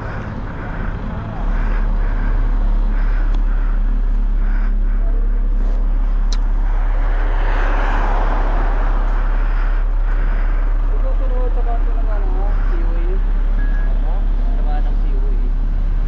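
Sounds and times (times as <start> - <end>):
motorcycle engine idling: 0.0 - 6.3
vehicle passing: 0.0 - 15.0.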